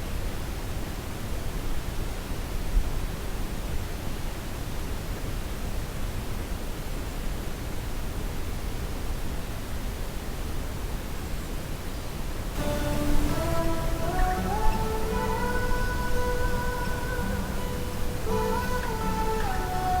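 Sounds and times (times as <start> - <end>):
background music: 12.6 - 20.0.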